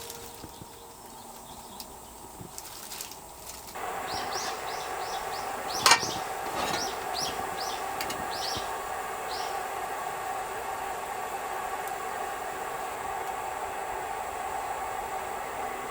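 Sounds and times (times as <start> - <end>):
bird chirping: 0.0 - 10.3
steady hiss: 0.0 - 15.9.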